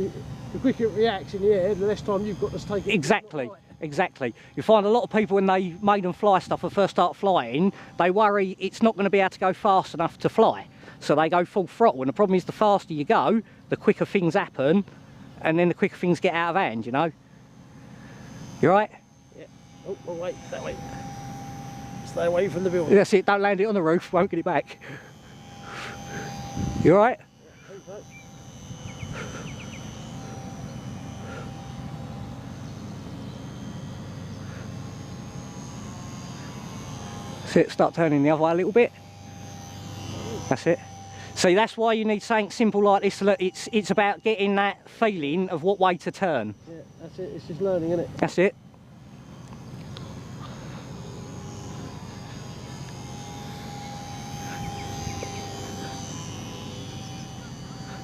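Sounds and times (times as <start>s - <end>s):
electric motor of model plane: 0.0s - 58.0s
wind rumble on microphone: 26.6s - 26.9s.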